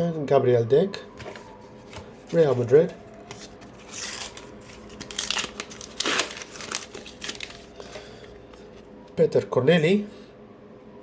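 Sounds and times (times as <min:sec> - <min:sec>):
paper wrapper crinkling: 0:01.2 - 0:08.9.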